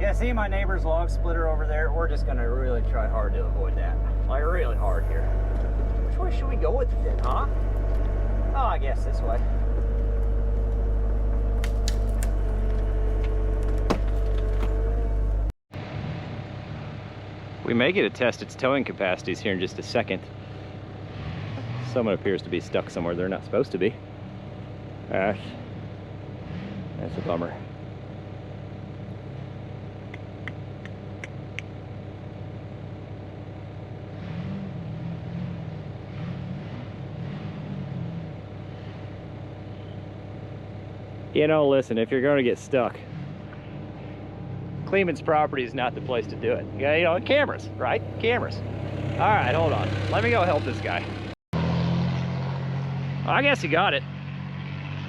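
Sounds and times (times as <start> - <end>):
low wavering sound: 0.0 - 13.9
excavator diesel engine running: 0.0 - 26.2, 38.1 - 51.4
hydraulic whine: 0.0 - 53.5
tree cracking and splintering: 9.3 - 14.7.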